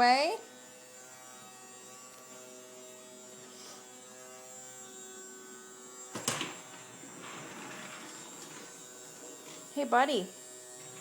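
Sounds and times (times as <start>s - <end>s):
vacuum cleaner motor humming: 5.2s - 11.0s.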